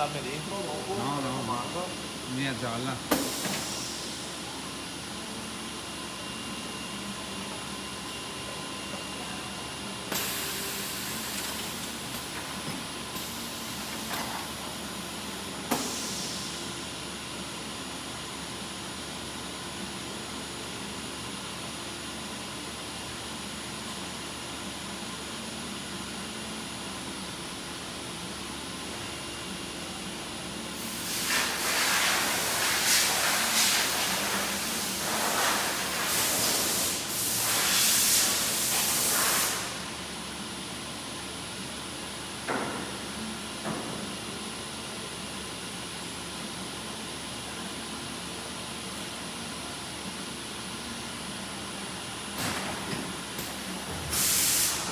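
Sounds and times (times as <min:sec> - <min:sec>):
loud air hisses: 0:10.1 - 0:11.9, 0:15.7 - 0:16.7, 0:30.7 - 0:40.0, 0:54.0 - 0:54.9.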